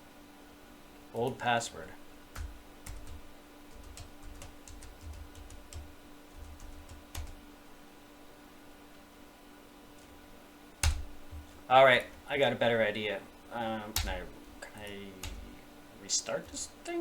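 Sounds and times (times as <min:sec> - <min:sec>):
faint steady hum: 0:00.0 - 0:17.0
keyboard keystrokes and clicks: 0:02.4 - 0:07.4, 0:10.8 - 0:11.4, 0:13.9 - 0:15.5.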